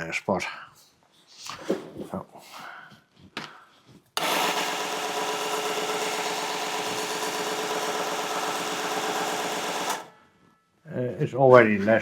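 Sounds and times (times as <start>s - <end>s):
belt sander running: 4.2s - 10.1s.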